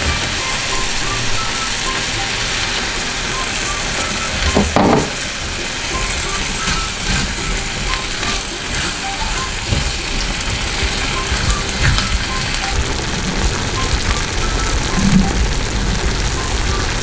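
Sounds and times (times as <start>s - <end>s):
curry sizzling and bubbling: 0.0s - 17.0s
soft background music: 0.0s - 17.0s
spatula stirring in a pan: 5.2s - 13.4s.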